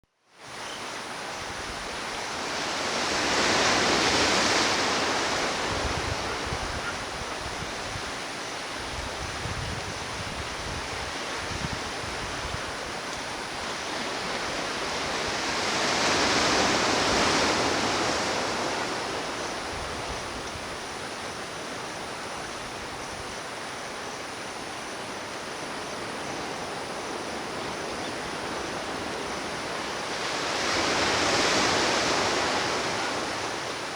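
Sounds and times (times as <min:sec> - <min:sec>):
ocean surf washing: 0:00.9 - 0:33.9
waves breaking: 0:02.0 - 0:06.9, 0:11.0 - 0:21.8, 0:28.4 - 0:33.9.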